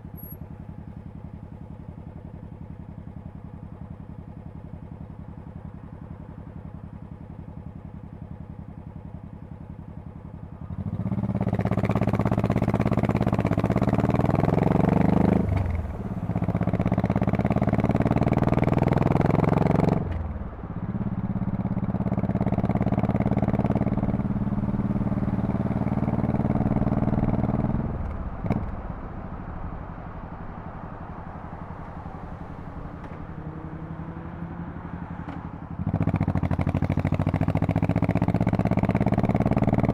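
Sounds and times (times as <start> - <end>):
motorcycle accelerating with gear changes: 0.0 - 39.9
motorcycle exhaust rumbling: 0.0 - 39.9.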